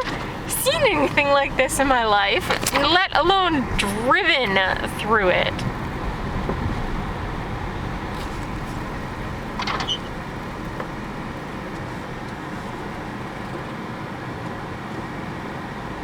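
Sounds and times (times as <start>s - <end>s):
car road and engine noise: 0.0s - 16.0s
short rattle of clicks: 9.5s - 10.1s.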